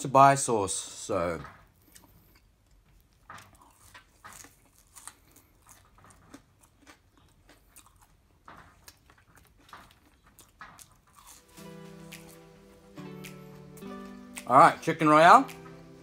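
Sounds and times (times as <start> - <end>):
person chewing fries: 1.4 - 16.0
wet mouth clicks: 9.6 - 12.4, 13.1 - 14.6.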